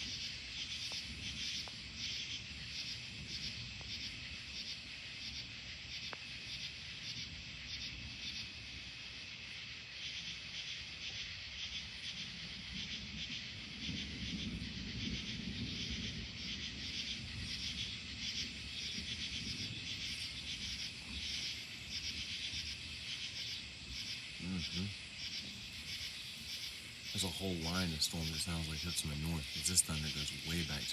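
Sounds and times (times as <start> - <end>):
night insects chirping: 0.0 - 30.9
distant thunder rumbling: 12.0 - 23.2, 24.5 - 30.9.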